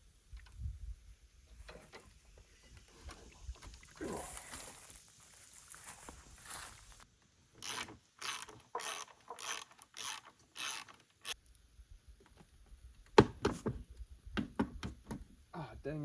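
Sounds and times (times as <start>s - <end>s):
hand ratchet strokes: 7.6s - 11.4s.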